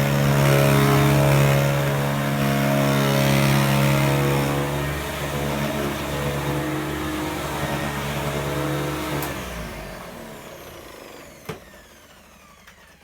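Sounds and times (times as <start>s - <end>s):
upright vacuum cleaner running: 0.0s - 13.0s
motor winding down whine: 4.5s - 13.0s.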